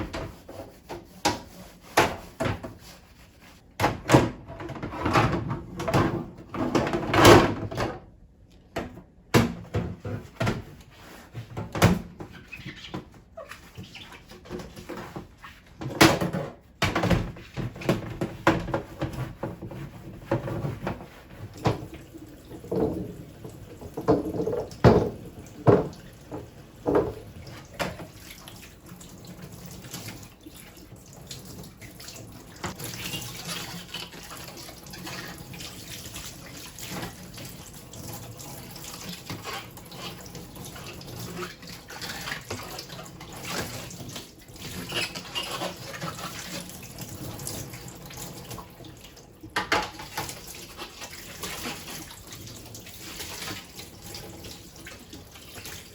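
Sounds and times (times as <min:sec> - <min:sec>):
dishes clattering at a sink: 0:03.8 - 0:08.1, 0:14.4 - 0:28.6, 0:49.4 - 0:52.4
tap water running: 0:17.0 - 0:55.9.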